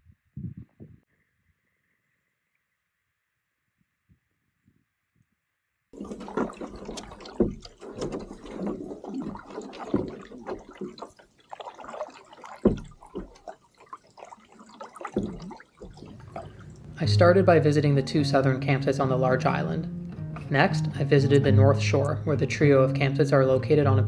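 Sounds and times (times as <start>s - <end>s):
water splashing around canoe: 6.0s - 17.5s.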